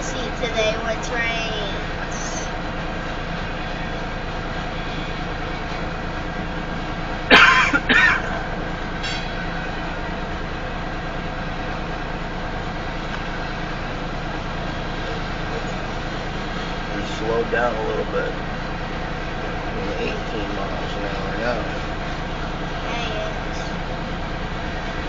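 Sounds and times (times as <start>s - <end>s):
loud bursts like a cough: 7.3s - 8.4s.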